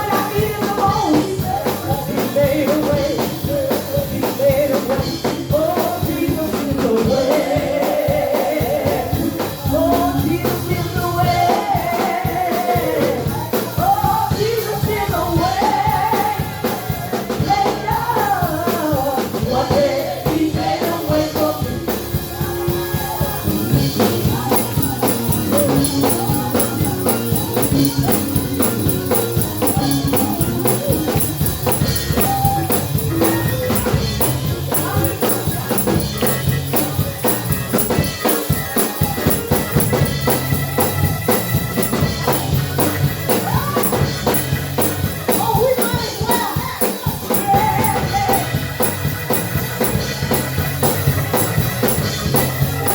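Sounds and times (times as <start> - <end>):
voices singing gospel: 0.0 - 52.9
tambourine: 20.8 - 52.9
drums beating: 21.8 - 52.9.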